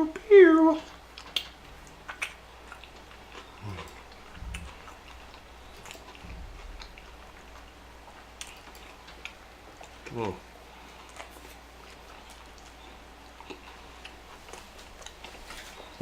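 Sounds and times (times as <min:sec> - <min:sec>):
person chewing food: 0:00.8 - 0:16.0
soft low thuds: 0:04.3 - 0:07.4.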